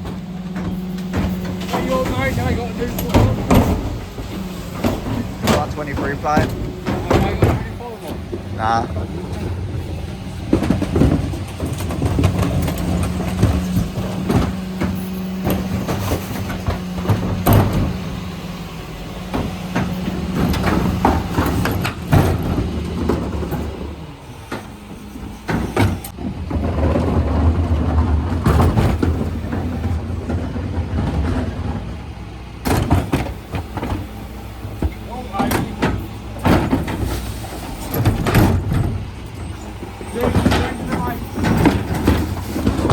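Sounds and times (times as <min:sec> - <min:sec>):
knocks and clatters: 0:00.0 - 0:42.9
refuse truck machinery humming: 0:00.0 - 0:42.9.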